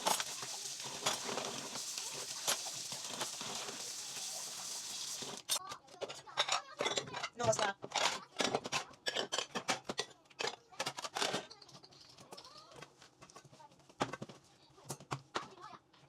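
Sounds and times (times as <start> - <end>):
dishes and cutlery clinking: 5.2 - 11.4.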